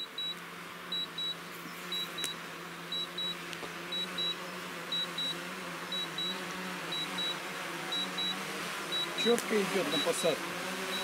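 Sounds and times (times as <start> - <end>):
drone buzzing: 0.0 - 11.0.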